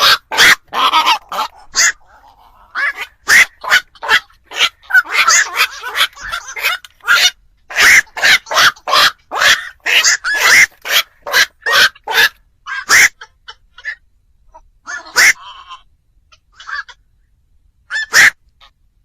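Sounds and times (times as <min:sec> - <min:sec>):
herons harsh croaking calls: 0:00.0 - 0:14.0, 0:14.8 - 0:17.0, 0:17.9 - 0:18.4.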